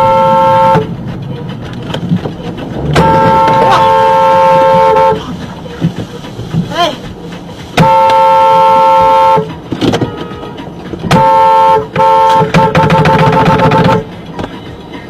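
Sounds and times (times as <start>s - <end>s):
car horn honking: 0.0s - 0.9s, 2.7s - 5.3s, 7.8s - 14.1s.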